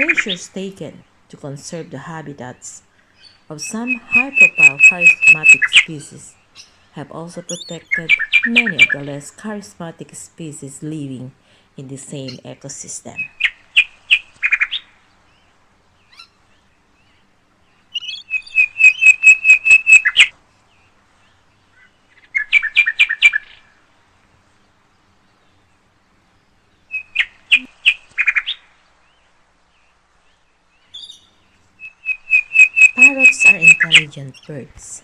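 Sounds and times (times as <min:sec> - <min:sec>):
parrot chirping rapidly: 0:03.2 - 0:06.7, 0:07.4 - 0:09.1, 0:17.9 - 0:20.3, 0:22.2 - 0:23.6, 0:26.9 - 0:28.6, 0:30.9 - 0:34.5.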